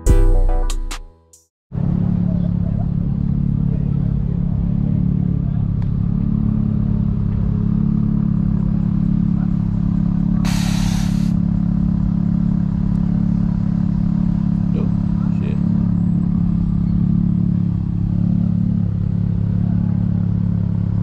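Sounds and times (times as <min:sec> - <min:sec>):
vehicle engine idling: 0:01.8 - 0:21.0
short hiss burst: 0:10.5 - 0:11.4.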